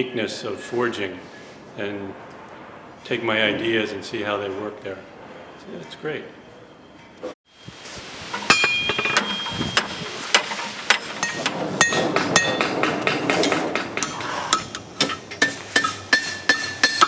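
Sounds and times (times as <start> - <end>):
hammers striking steel on anvils: 8.4 - 17.0.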